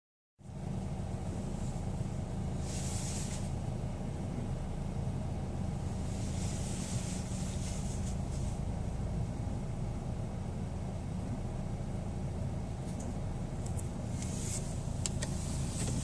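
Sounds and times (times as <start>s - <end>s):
car engine idling: 0.4s - 16.0s
short hiss: 2.5s - 3.6s.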